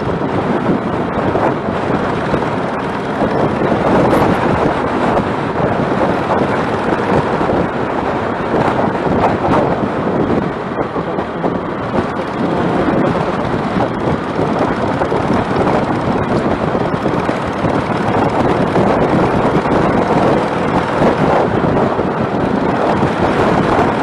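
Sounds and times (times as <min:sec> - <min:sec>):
motorcycle engine running: 0:00.0 - 0:24.0
wind rushing over microphone: 0:00.0 - 0:24.0.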